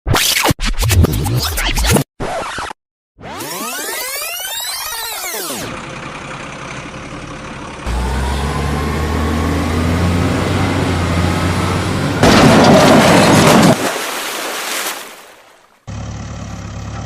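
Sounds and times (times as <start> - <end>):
tractor engine running: 5.6 - 13.7, 15.9 - 17.0.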